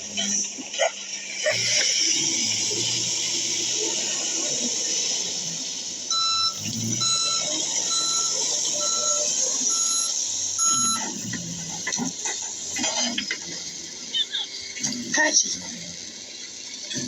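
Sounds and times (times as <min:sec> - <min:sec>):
steady background noise: 0:00.0 - 0:17.0
vehicle reversing alarm beeping: 0:06.1 - 0:11.3.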